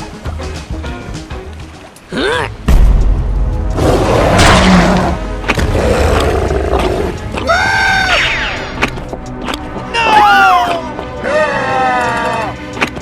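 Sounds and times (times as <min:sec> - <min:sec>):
deep rumble: 0:02.6 - 0:07.4
cartoon background music: 0:03.8 - 0:13.0.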